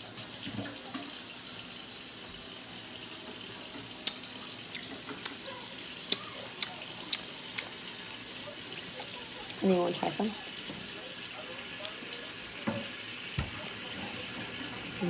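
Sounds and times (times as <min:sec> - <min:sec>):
mouth clicks of chewing: 0:06.1 - 0:07.8.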